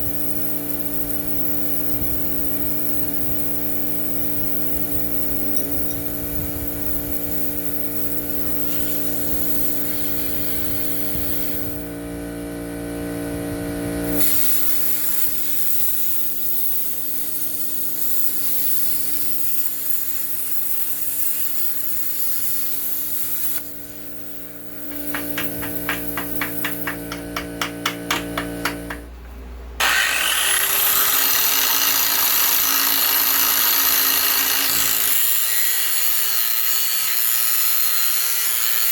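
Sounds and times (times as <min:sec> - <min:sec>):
power tool whining: 0:24.6 - 0:29.1, 0:29.8 - 0:38.9
hand tool strokes on metal: 0:24.8 - 0:29.0.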